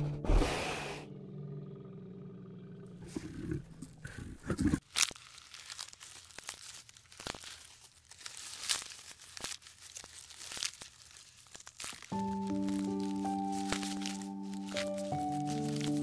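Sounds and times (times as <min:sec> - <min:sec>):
twigs crackling: 0:04.5 - 0:16.0
leafy branches rustling: 0:04.8 - 0:16.0.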